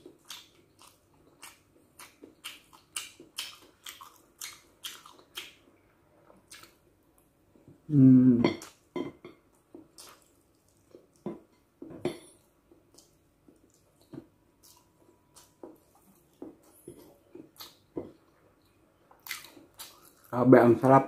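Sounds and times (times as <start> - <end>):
wet mouth smacks of chewing: 10.0 - 11.3, 12.9 - 17.8.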